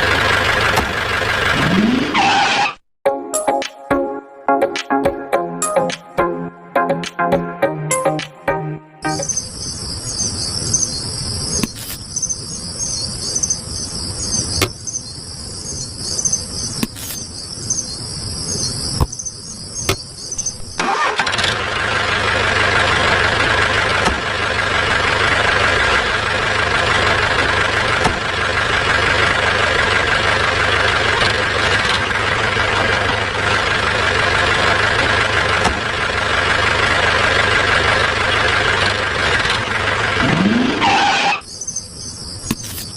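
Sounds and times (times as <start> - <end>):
engine running with whine: 0.0 - 2.8, 6.0 - 42.9
crickets chirping: 9.1 - 20.8, 41.4 - 42.9.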